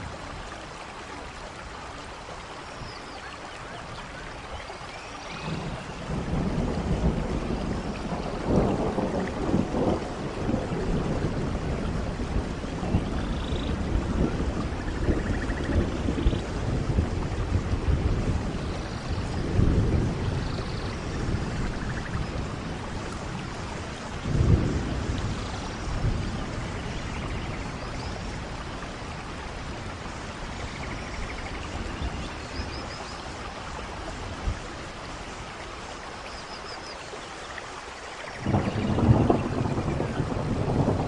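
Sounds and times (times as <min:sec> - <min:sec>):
steady rain falling: 0:00.0 - 0:41.0
thunder rumbling: 0:05.3 - 0:35.2, 0:38.4 - 0:41.0.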